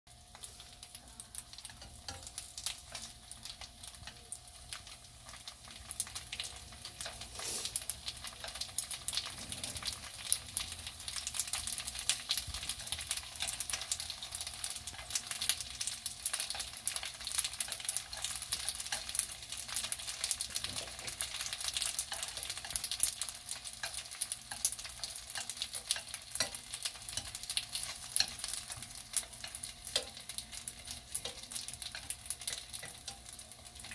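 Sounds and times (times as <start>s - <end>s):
dumplings sizzling in frying pan: 0.1s - 33.9s.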